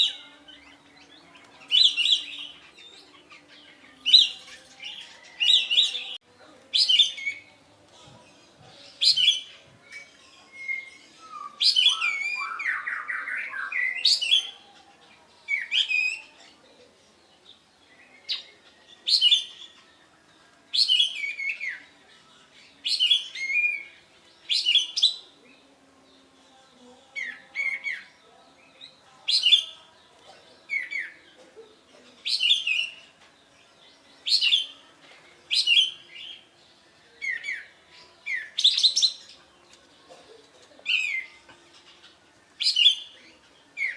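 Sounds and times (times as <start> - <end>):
songbird calling sharp notes: 9.0 - 14.6.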